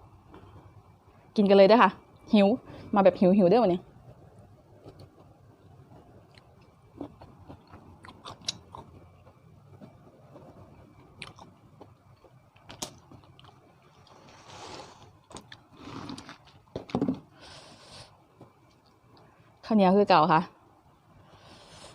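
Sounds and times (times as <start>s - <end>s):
crunching while chewing: 6.2s - 16.7s.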